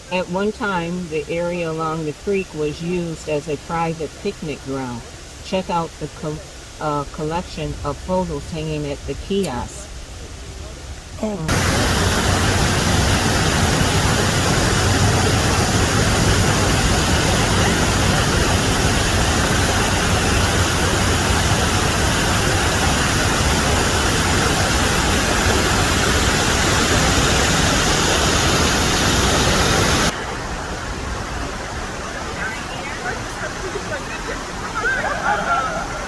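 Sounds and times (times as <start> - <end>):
creek water rushing: 9.9 - 36.0.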